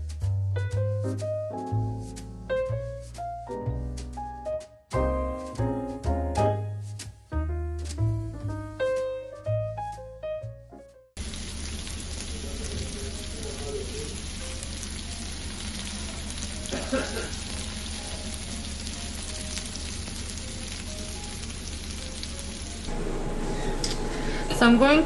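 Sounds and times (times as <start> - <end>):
meat sizzling on a grill: 11.2 - 23.0
low steady hum: 21.4 - 25.0.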